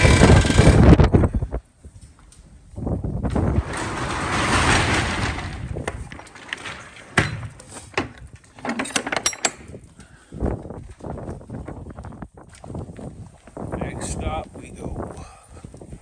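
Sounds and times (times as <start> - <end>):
metal rattling: 0.0 - 1.0, 3.3 - 9.8.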